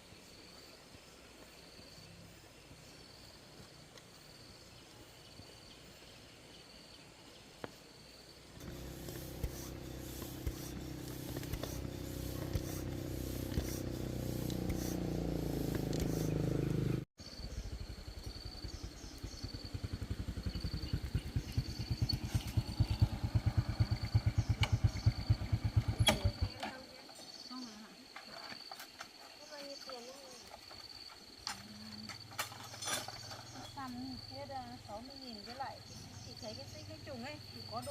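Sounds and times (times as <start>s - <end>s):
small engine putter: 8.6s - 17.0s, 17.6s - 26.9s, 30.8s - 34.0s.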